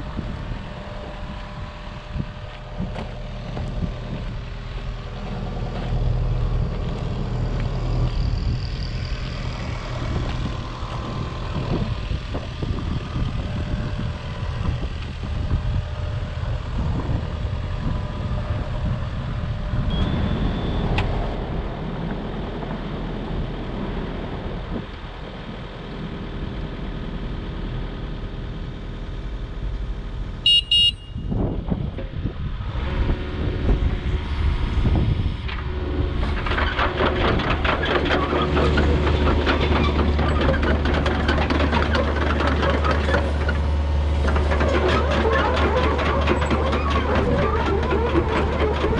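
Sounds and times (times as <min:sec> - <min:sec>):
excavator diesel engine running: 0:00.0 - 0:48.9
horn beep: 0:19.9 - 0:20.9, 0:30.4 - 0:31.3.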